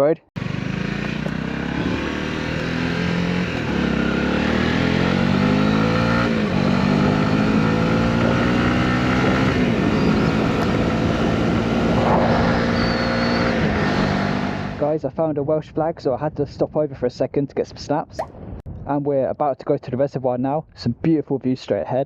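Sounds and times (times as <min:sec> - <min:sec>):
motorcycle engine accelerating: 0:00.4 - 0:14.8.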